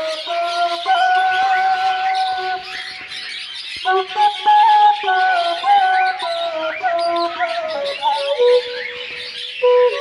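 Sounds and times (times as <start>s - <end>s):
pet birds chirping: 0.0s - 10.0s.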